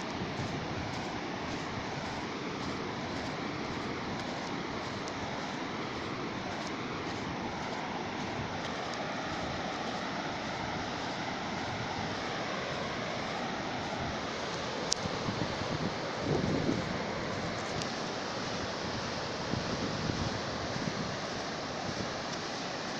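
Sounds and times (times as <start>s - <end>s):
sea waves breaking on shore: 0.0s - 22.9s.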